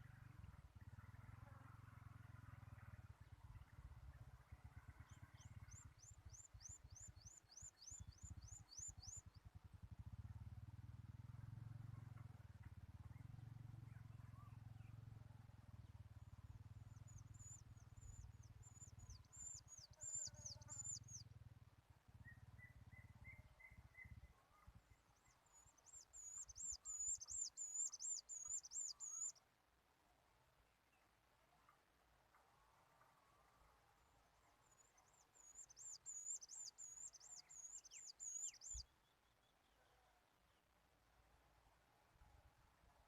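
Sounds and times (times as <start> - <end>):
faint low hum: 0.0 - 43.0
bird chirping: 5.1 - 9.4, 16.8 - 21.3, 25.2 - 29.4, 34.4 - 40.6.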